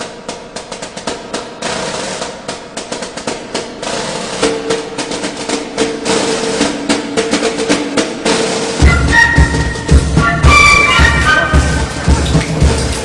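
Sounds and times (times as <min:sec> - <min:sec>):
rapid drum hits: 0:00.0 - 0:13.0
steady held notes: 0:03.7 - 0:13.0.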